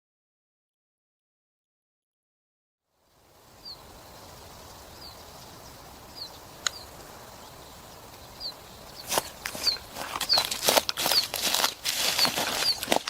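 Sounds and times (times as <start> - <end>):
outdoor background: 2.8 - 13.0
bird chirping high falling chirp: 3.1 - 11.4, 12.1 - 12.9
sharp click: 6.6 - 6.8
footsteps: 9.0 - 13.0.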